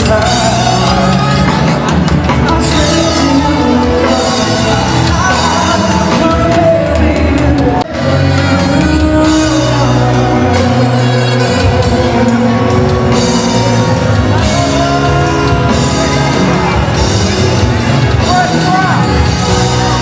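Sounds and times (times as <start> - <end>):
drums: 0.0 - 20.0
guitar: 0.0 - 20.0
live band playing: 0.0 - 20.0
person singing: 0.0 - 20.0.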